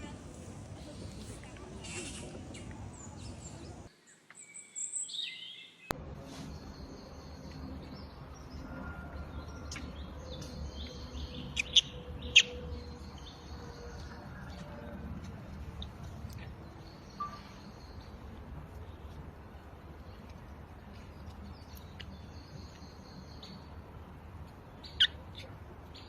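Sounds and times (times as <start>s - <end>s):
high-pitched chirping calls: 9.7s - 13.4s.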